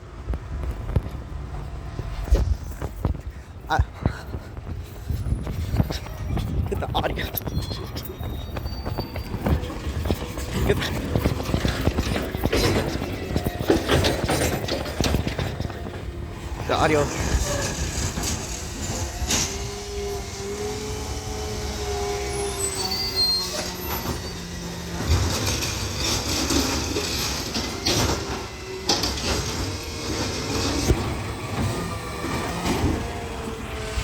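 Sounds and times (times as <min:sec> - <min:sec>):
garbage truck engine driving off: 0:07.4 - 0:34.0.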